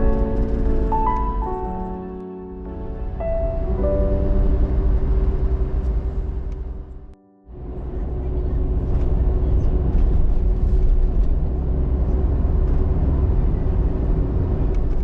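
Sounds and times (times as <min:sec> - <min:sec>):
vehicle rumble: 0:00.0 - 0:15.0.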